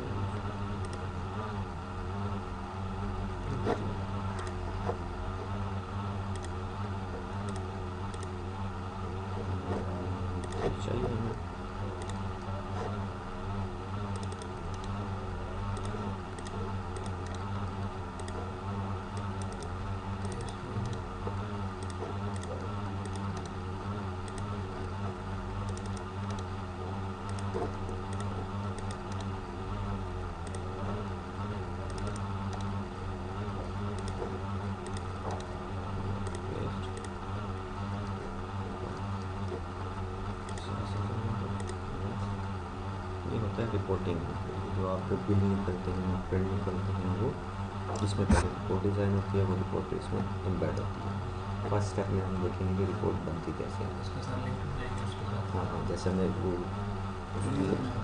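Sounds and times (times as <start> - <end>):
steady low hum: 0.0 - 58.0
computer keyboard typing: 6.2 - 6.6, 12.0 - 12.5, 14.0 - 15.0, 15.7 - 18.4, 19.1 - 21.0, 21.8 - 23.5, 24.2 - 24.6, 25.6 - 26.5, 27.2 - 29.4, 31.9 - 32.8, 33.8 - 34.2, 34.8 - 35.5, 36.1 - 37.2.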